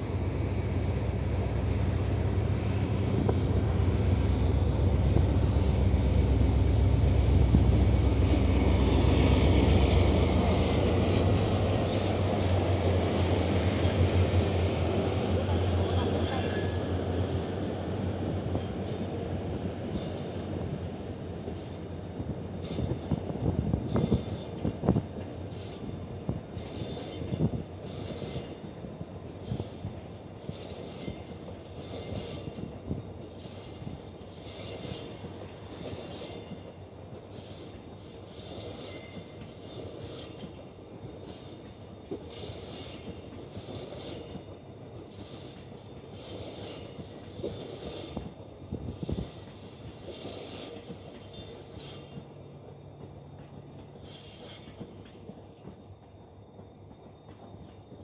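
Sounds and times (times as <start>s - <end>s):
locomotive engine hum: 0.0s - 19.7s
wheels squealing on rails: 0.0s - 20.8s, 21.5s - 56.2s
train wheels clattering: 21.4s - 58.0s.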